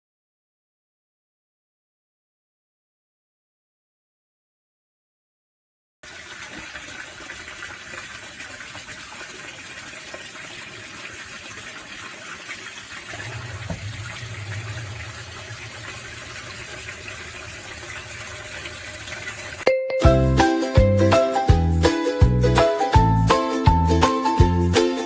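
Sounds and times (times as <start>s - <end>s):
water gushing from pump: 6.0s - 19.7s
low hum: 13.1s - 19.7s.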